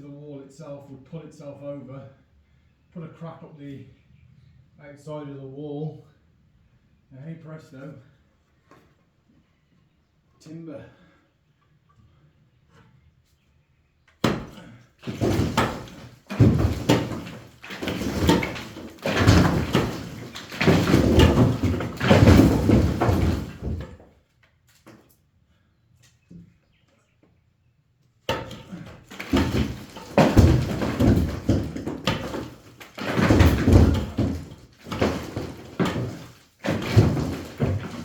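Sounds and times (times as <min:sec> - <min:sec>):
bricks knocked out of wall: 0:14.2 - 0:24.1, 0:28.3 - 0:38.0
rubble clattering down: 0:14.2 - 0:24.1, 0:28.3 - 0:38.0.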